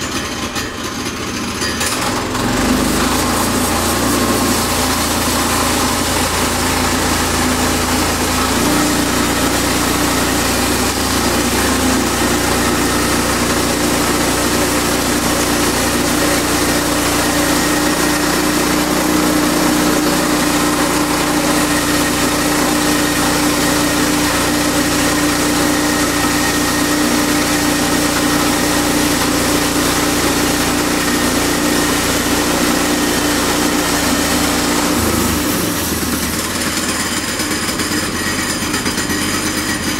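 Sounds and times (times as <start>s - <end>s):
gasoline engine running: 0.0s - 39.9s.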